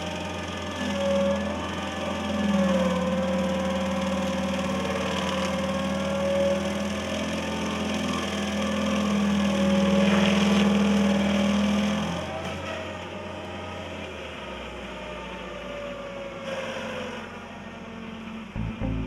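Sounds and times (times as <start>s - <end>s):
stump grinder engine running: 0.0s - 14.0s.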